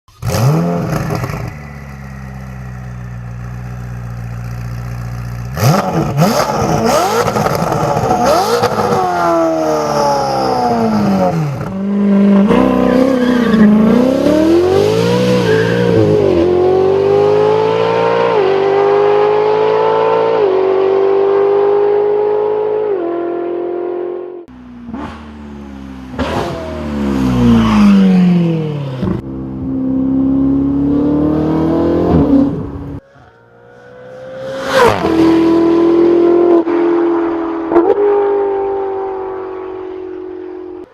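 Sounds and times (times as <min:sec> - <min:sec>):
sports car engine revving: 0:04.5 - 0:33.0.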